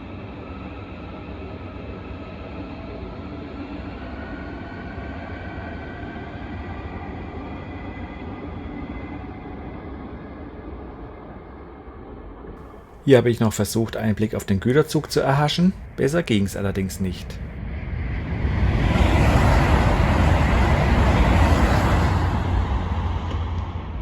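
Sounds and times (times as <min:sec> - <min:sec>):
train wheels rumbling on rails: 0:18.9 - 0:24.0.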